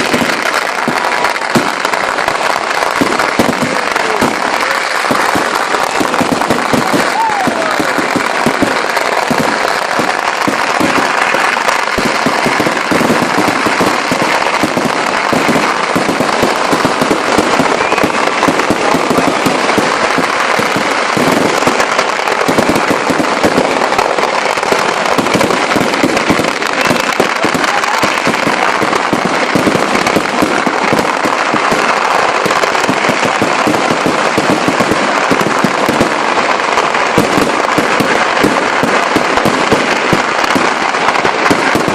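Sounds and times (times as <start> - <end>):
firecrackers crackling: 0.0 - 41.9.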